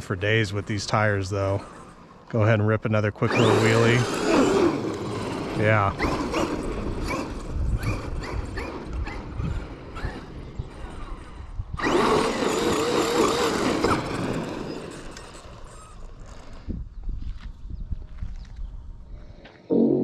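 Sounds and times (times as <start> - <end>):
tyre and dirt noise: 0.0 - 19.7
electric motor whining: 3.2 - 16.7.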